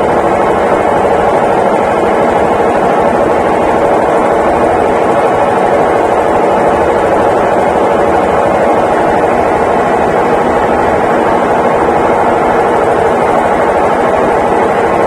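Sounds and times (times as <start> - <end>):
washing machine spinning: 0.0 - 15.0.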